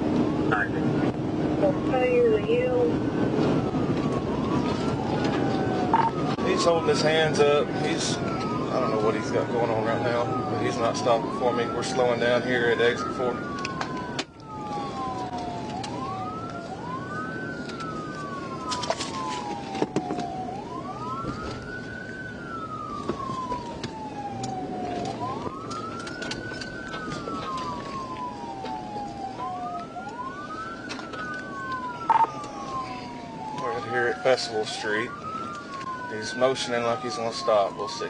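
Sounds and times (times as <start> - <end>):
police sirens wailing: 0.0 - 38.0
road noise: 0.0 - 38.0.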